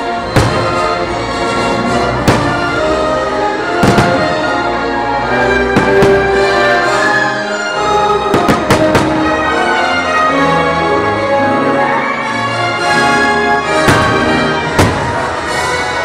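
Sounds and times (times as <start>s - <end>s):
orchestral music over loudspeakers: 0.0s - 16.0s
firework bursts banging: 0.3s - 1.1s, 2.2s - 2.9s, 3.8s - 4.6s, 5.7s - 6.7s, 8.3s - 9.5s, 13.8s - 15.6s.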